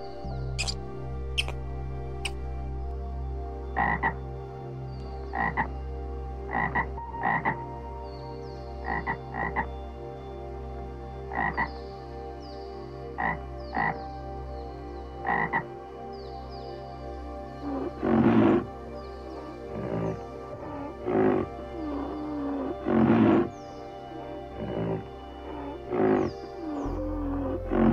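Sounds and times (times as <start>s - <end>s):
frog croaking: 0.6s - 0.8s, 1.4s - 1.6s, 3.8s - 4.2s, 5.3s - 5.7s, 6.5s - 7.6s, 8.8s - 9.7s, 11.3s - 11.7s, 13.2s - 14.0s, 15.2s - 15.8s, 17.6s - 27.9s.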